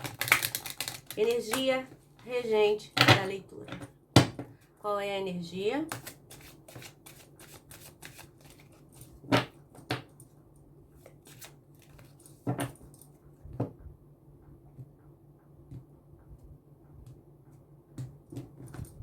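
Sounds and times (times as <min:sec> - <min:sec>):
cards shuffling: 0:00.0 - 0:01.5, 0:05.9 - 0:09.1, 0:11.0 - 0:12.4.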